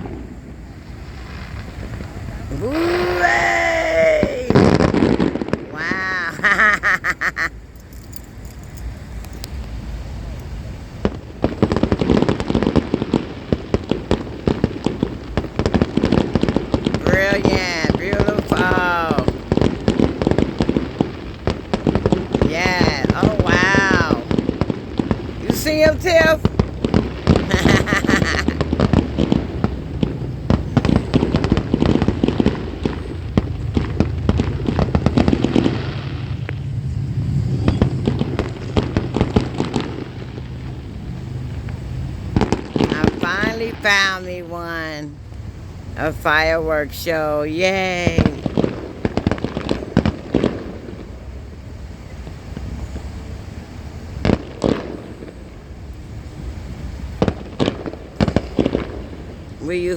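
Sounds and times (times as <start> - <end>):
fireworks bangs and crackles: 0.0 - 59.9
low hum: 32.7 - 42.4.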